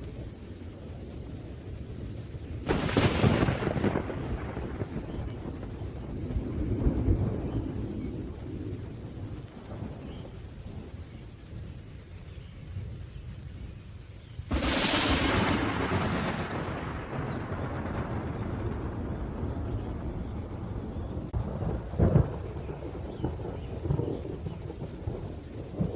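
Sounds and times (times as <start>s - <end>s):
rolling thunder: 0.0s - 13.4s, 14.4s - 25.9s
rain: 0.0s - 25.9s
sharp thunderclap: 2.6s - 10.2s, 14.5s - 25.9s.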